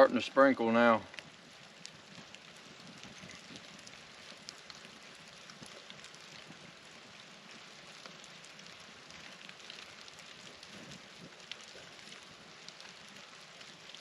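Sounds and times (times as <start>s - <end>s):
light rain hiss: 0.0s - 14.0s
raindrops ticking: 0.0s - 14.0s.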